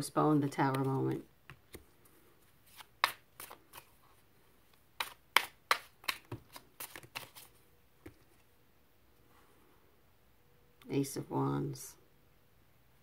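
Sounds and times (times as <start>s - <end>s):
cards being shuffled: 0.5s - 4.1s, 4.7s - 8.4s.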